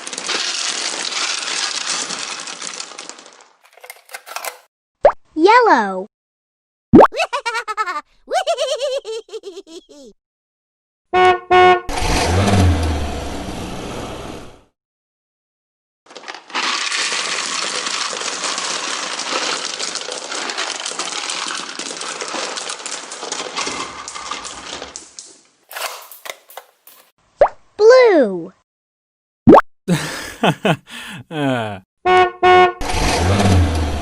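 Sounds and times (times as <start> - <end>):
car horn honking: 11.1 - 12.0, 32.1 - 32.8.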